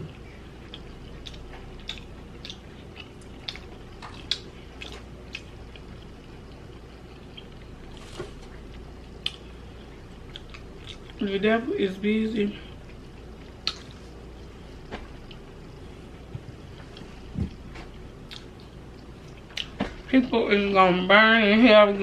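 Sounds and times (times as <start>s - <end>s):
person chewing food: 0.0s - 11.2s, 12.6s - 20.0s
low steady hum: 0.0s - 22.0s.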